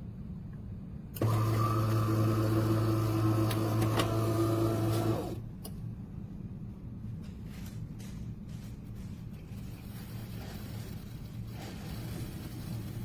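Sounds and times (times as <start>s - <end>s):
espresso machine humming: 1.2s - 5.4s.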